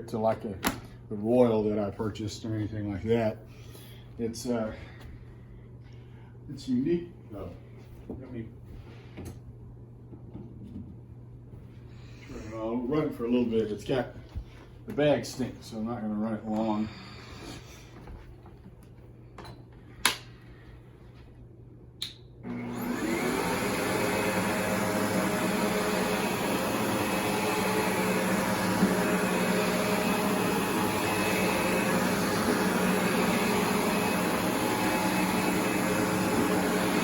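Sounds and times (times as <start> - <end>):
vacuum cleaner motor whining: 22.4 - 37.0.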